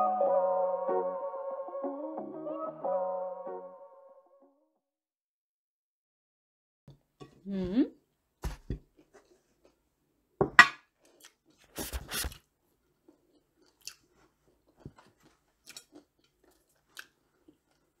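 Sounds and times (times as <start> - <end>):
crunchy bites and chewing: 13.3 - 17.9.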